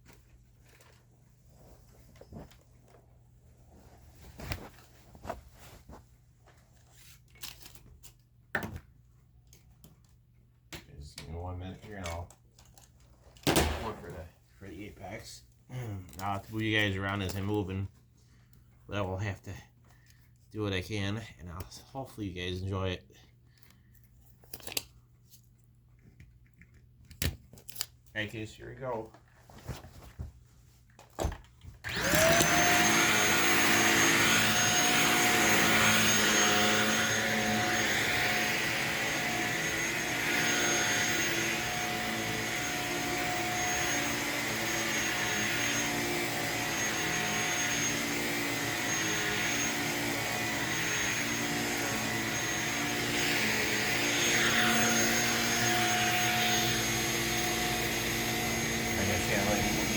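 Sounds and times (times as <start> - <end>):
vacuum cleaner motor whine: 31.8 - 59.9.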